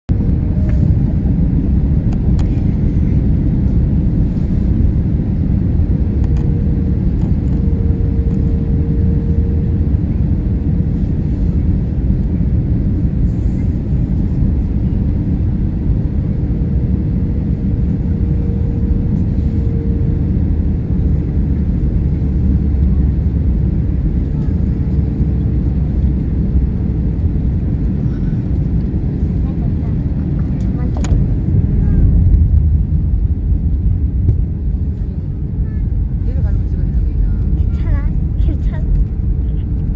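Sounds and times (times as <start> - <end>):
faint wavering hum: 0.1 - 23.7
jet engines rumbling: 0.1 - 39.9.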